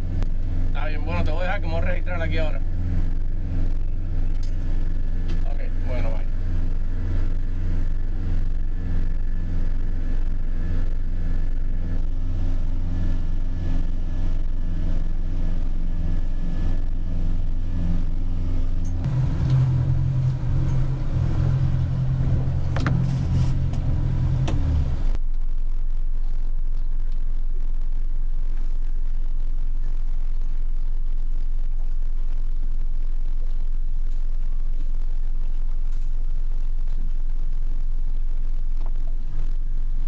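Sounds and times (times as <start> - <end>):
outboard engine running: 0.0 - 25.2
steady low hum: 0.0 - 40.0.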